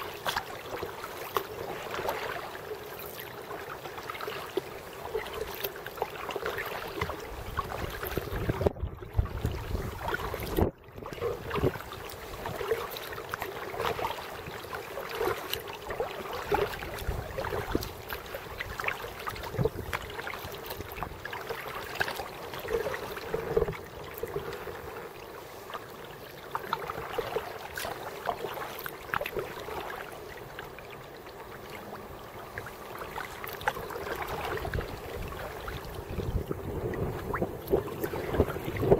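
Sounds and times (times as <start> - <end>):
paddles splashing in water: 0.0 - 38.9
water running along hull: 0.0 - 38.9
small knocks and drips: 4.2 - 14.2, 15.0 - 24.7.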